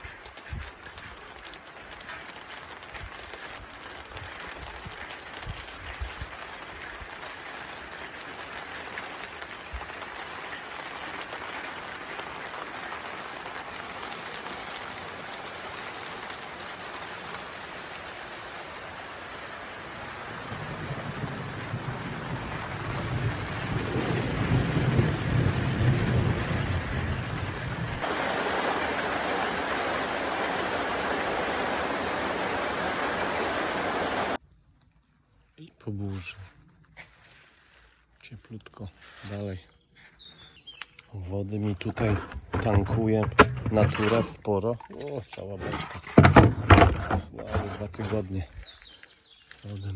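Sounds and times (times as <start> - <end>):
steady rain pouring: 0.0 - 34.4, 40.8 - 45.0
low rumble of thunder: 20.3 - 28.0.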